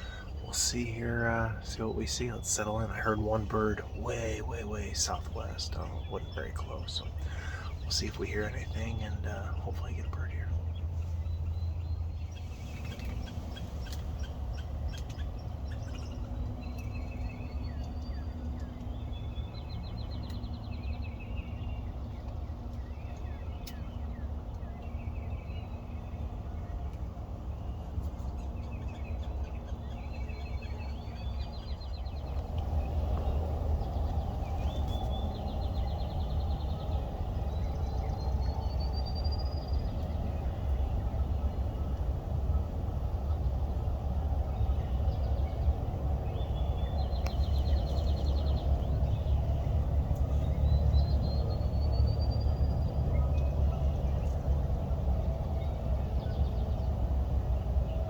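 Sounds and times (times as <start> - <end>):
broad rushing noise: 0.0 - 10.6
songbirds singing: 0.0 - 58.0
steady low rumble: 0.0 - 58.0.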